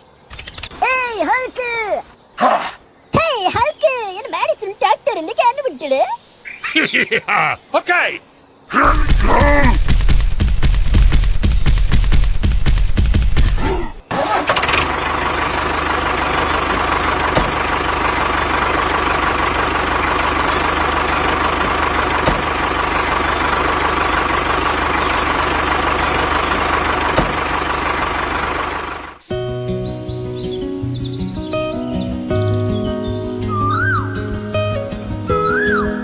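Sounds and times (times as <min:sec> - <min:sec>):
engine idling: 0:08.9 - 0:29.2.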